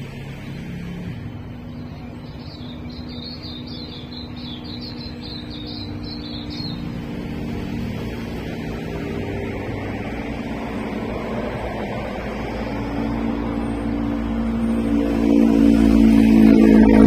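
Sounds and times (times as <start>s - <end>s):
small bird singing: 1.5s - 8.2s.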